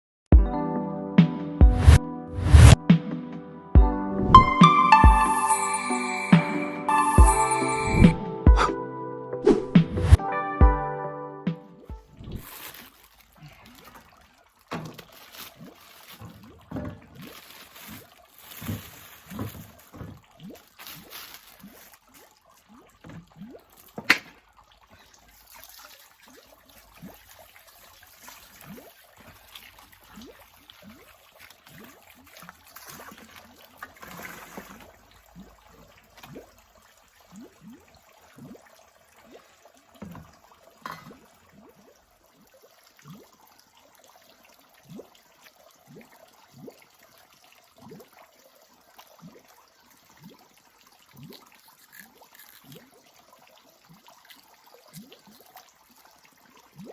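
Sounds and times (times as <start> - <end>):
water trickling and dripping: 11.8 - 56.9
drops plopping into water: 23.0 - 24.5, 40.0 - 41.3.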